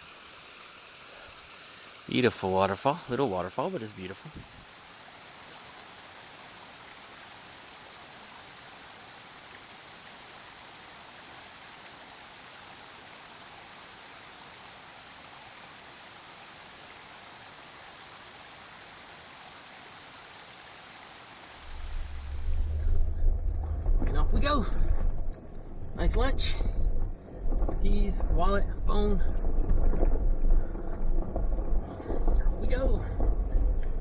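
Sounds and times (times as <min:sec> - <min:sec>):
waterfall splashing: 0:00.0 - 0:27.5
low rumble: 0:21.6 - 0:34.0.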